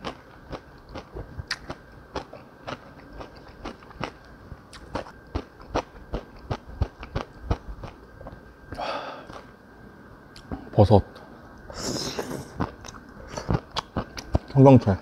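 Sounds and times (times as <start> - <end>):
person chewing food: 0.0 - 8.4, 12.1 - 14.6.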